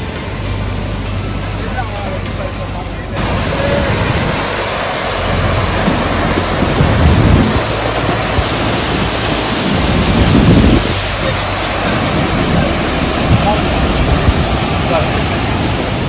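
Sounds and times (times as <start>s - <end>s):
waterfall rushing: 0.0s - 16.0s
wind buffeting the microphone: 3.1s - 16.0s.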